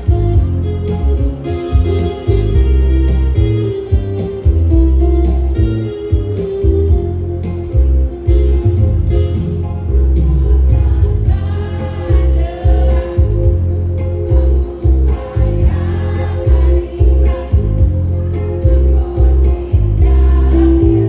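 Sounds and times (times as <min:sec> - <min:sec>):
amplified band playing: 0:00.0 - 0:21.0
choir singing in unison: 0:09.6 - 0:21.0.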